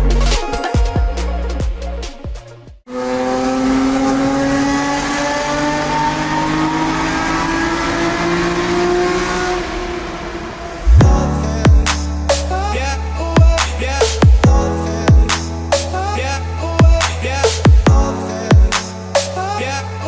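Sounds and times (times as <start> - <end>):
electronic music with deep bass: 0.0 - 2.8, 10.9 - 20.0
car engine accelerating: 2.9 - 11.6.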